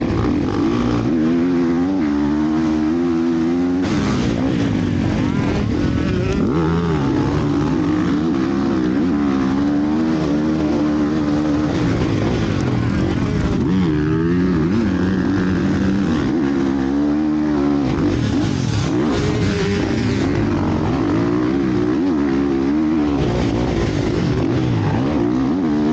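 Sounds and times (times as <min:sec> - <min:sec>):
motocross motorcycles revving: 0:00.0 - 0:25.9.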